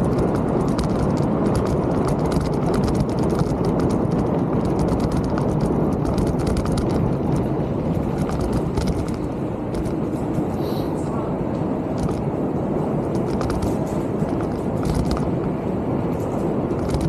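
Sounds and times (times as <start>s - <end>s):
mountain bike parts rattling: 0.0s - 10.2s, 16.1s - 17.0s
tyre noise on trail: 0.0s - 10.7s, 13.1s - 17.0s
wind rushing: 0.0s - 17.0s.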